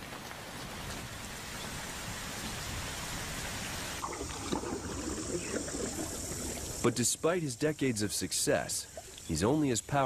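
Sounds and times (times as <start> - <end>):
hiss of running water: 0.0 - 10.0
water trickling and gurgling: 3.6 - 7.4, 8.6 - 10.0.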